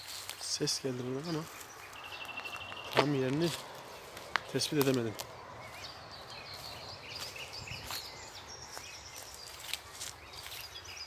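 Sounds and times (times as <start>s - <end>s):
birds chirping and whistling: 0.0s - 11.0s.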